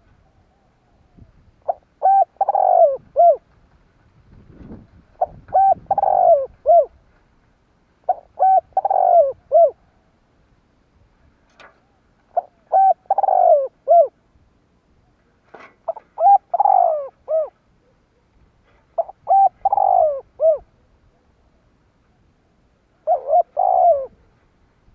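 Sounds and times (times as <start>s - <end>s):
dove cooing song: 0.0s - 3.6s, 4.4s - 7.1s, 8.0s - 10.1s, 11.8s - 14.2s, 15.8s - 21.5s, 22.1s - 24.6s.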